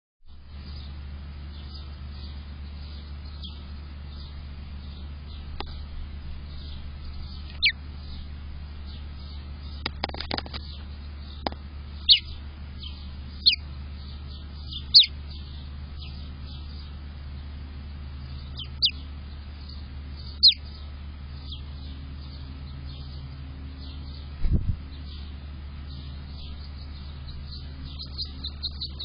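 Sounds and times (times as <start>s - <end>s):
steady low hum: 0.3s - 29.0s
bird chirping: 0.6s - 5.8s, 6.4s - 29.0s.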